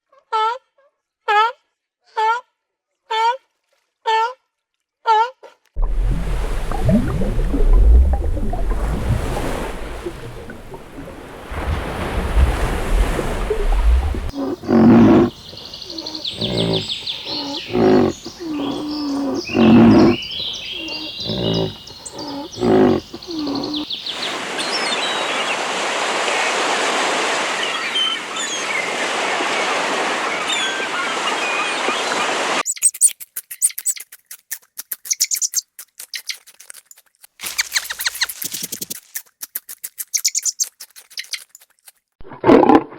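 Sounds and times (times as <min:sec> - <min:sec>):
animal calls: 0:08.2 - 0:23.9, 0:37.4 - 0:39.0
bird chirps: 0:15.0 - 0:25.4, 0:30.3 - 0:34.1, 0:35.0 - 0:36.4, 0:37.4 - 0:39.0, 0:40.1 - 0:41.5.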